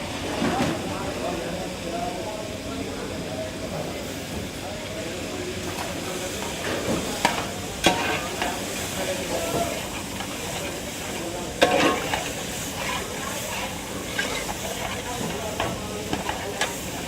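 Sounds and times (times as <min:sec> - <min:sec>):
food sizzling in hot oil: 0:04.0 - 0:17.0
metal ladle scraping in pot: 0:11.6 - 0:16.4.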